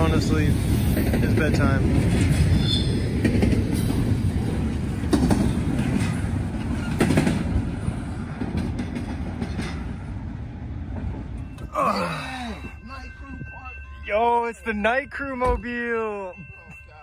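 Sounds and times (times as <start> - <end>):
wheels clacking over rail joints: 0.0 - 10.2.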